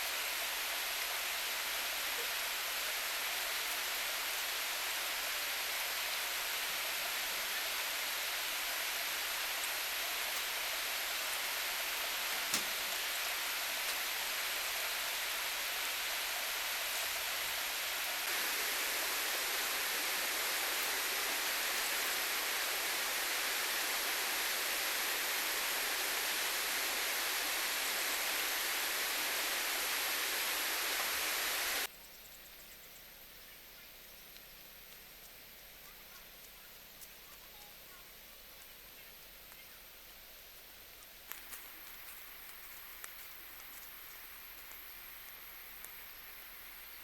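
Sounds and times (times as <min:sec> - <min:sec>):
steady rushing noise: 0:08.0 - 0:31.9.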